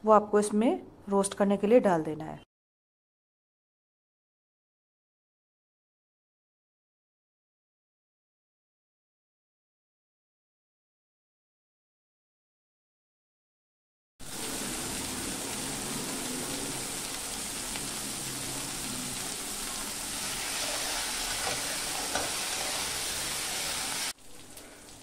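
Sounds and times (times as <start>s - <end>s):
leaves sizzling in a hot pan: 14.2s - 25.0s.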